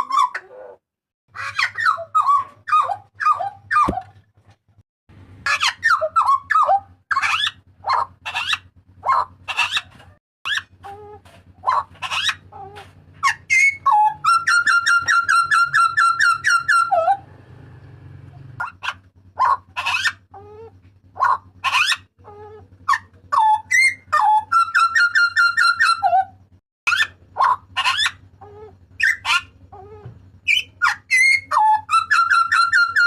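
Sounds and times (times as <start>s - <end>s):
fast run of repeated bird notes: 5.3s - 11.0s, 11.6s - 12.6s, 13.2s - 26.2s, 26.9s - 29.8s, 30.4s - 33.0s
bird calling sharp notes: 10.5s - 17.2s, 18.6s - 33.0s.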